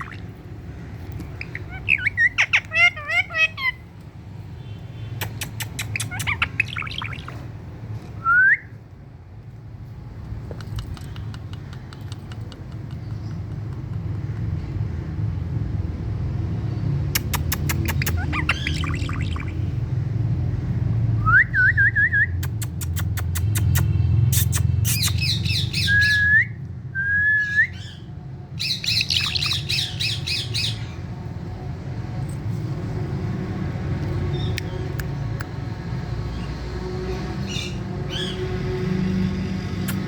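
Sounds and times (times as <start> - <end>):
parakeet squawking and chattering: 0.0 - 7.8, 17.1 - 20.0, 22.5 - 26.2, 27.7 - 31.6, 34.3 - 40.0
parakeet rising whistles: 25.0 - 28.0.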